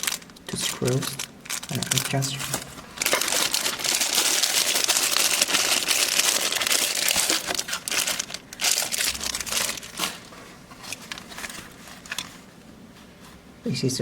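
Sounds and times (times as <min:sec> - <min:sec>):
plastic packaging crinkling: 0:00.0 - 0:12.7.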